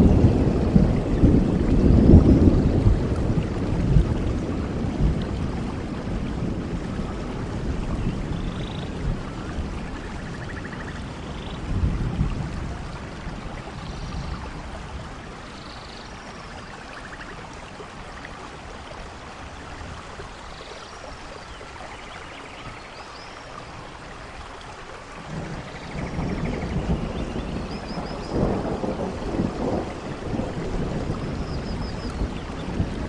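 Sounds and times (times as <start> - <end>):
thunder rumble: 0.0 - 15.5, 25.2 - 33.0
steady rainfall: 0.0 - 33.0.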